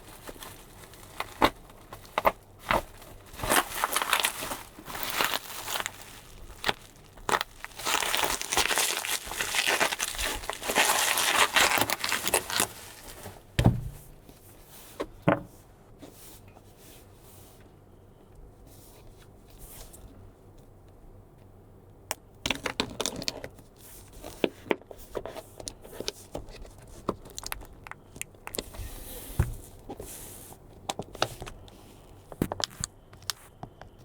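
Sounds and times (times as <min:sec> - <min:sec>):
bubble wrap crinkling: 0:00.0 - 0:13.9, 0:25.9 - 0:30.2
dull thumps: 0:13.2 - 0:14.2.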